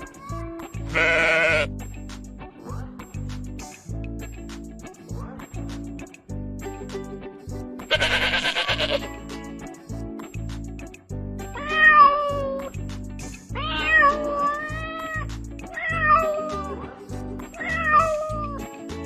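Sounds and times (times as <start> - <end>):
background music with beat: 0.0 - 19.0
cat meowing: 1.0 - 1.7, 7.9 - 9.0, 11.6 - 12.7, 13.5 - 16.7, 17.6 - 18.6.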